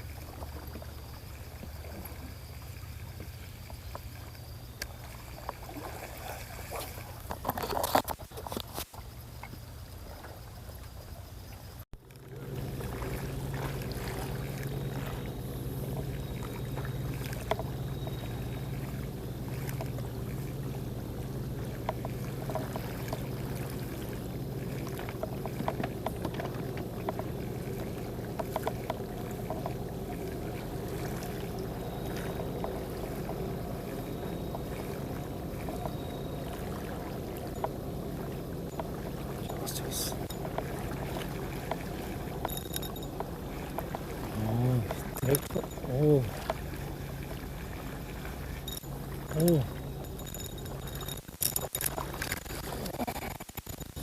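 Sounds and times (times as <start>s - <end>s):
boat engine idling: 12.0s - 52.9s.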